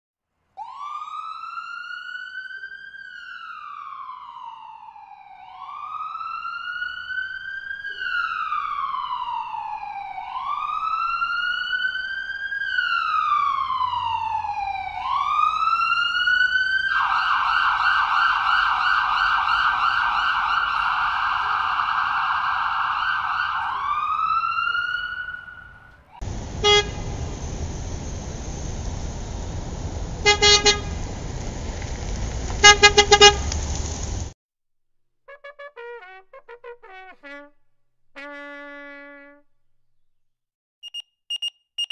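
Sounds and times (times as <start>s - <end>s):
ambulance siren wailing: 0.6s - 31.8s
road noise: 7.7s - 34.4s.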